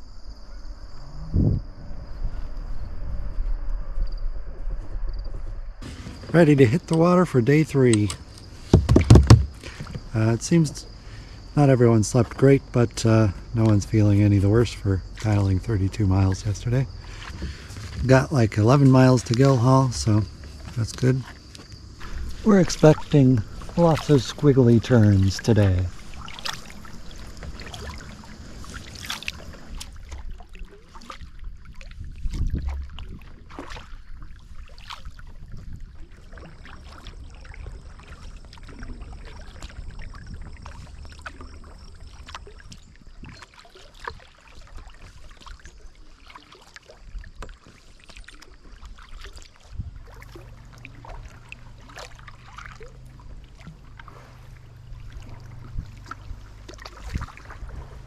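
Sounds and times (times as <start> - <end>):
steady low rumble: 0.0 - 8.5, 10.0 - 30.6
paddle splashing in water: 5.5 - 58.0
small knocks: 8.0 - 10.1
loud low thump: 8.7 - 9.6
water dripping: 12.2 - 33.8, 36.3 - 57.6.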